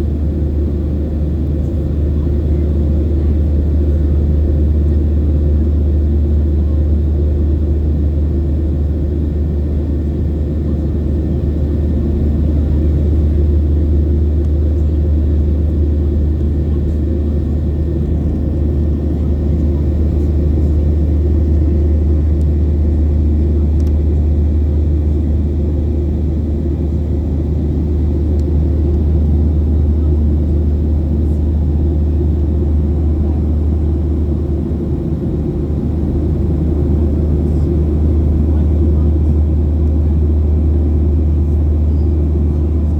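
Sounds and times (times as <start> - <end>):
jet engines low rumble: 0.0 - 42.9.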